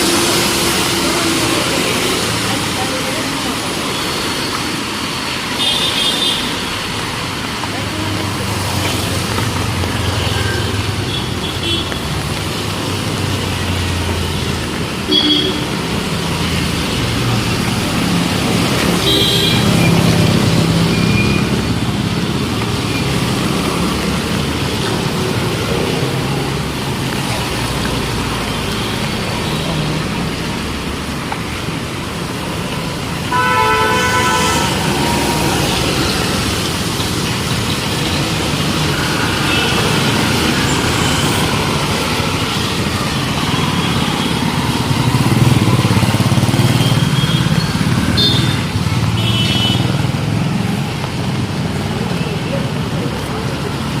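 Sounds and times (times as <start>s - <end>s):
street traffic passing: 0.0s - 54.0s
vehicle horn toots: 15.1s - 15.7s, 33.3s - 35.2s.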